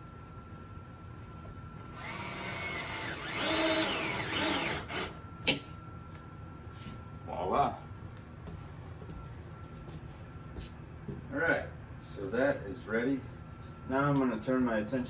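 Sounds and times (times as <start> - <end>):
power drill whining: 1.9 - 5.2
drill click: 1.9 - 5.6.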